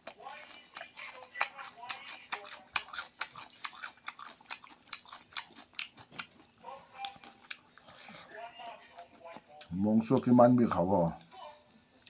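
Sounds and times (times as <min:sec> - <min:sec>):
lip smacks: 0:00.0 - 0:08.1
wet chewing: 0:00.0 - 0:12.0.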